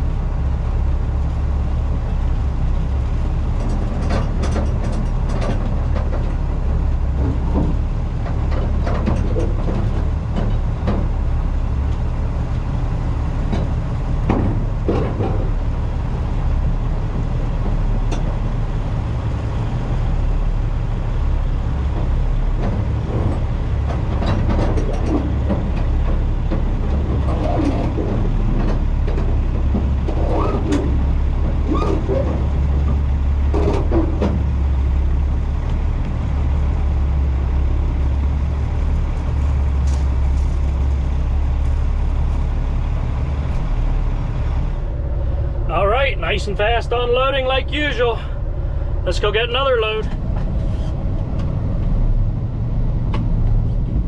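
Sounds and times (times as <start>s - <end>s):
diesel engine rumbling: 0.0s - 54.0s
knocks and clanks: 3.6s - 6.5s, 7.1s - 11.2s, 13.4s - 15.7s, 21.8s - 34.8s.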